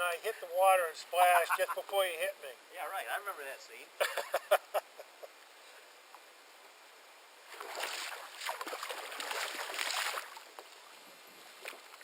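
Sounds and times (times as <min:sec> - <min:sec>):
water splashing: 0:07.4 - 0:12.0.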